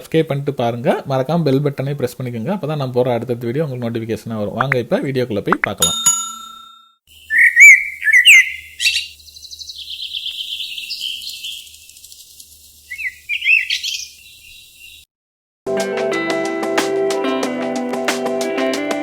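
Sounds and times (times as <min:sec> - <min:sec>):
animal trill: 0:07.2 - 0:12.0
animal chirps and squeaks: 0:07.3 - 0:15.0.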